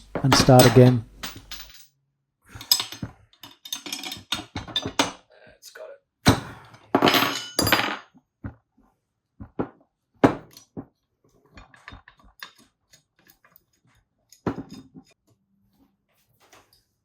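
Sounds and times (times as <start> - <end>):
metal tools clanking on bench: 0.0 - 1.8, 2.6 - 5.2, 7.0 - 8.0, 11.6 - 15.2.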